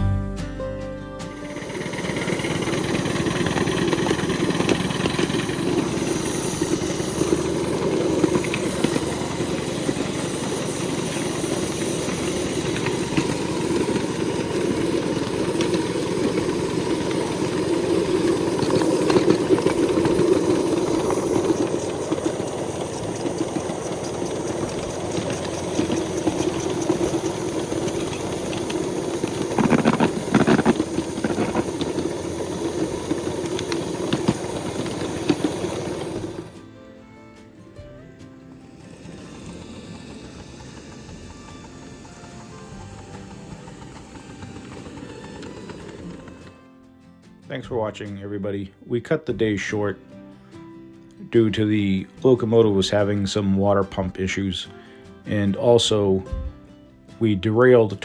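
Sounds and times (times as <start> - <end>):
steam locomotive running: 1.2 - 46.8.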